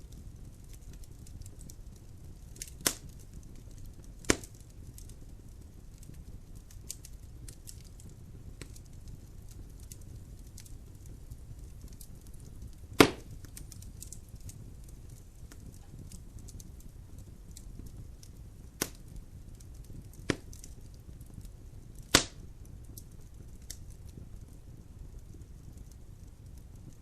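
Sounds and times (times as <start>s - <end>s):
logs crackling in a fireplace: 0.0s - 27.0s
sharp loud fire pops: 13.0s - 13.4s, 22.1s - 22.4s.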